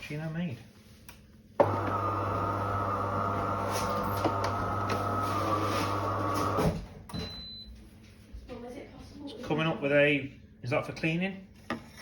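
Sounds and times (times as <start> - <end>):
coffee machine pump humming: 1.6 - 6.9
faint high beep: 7.2 - 7.7.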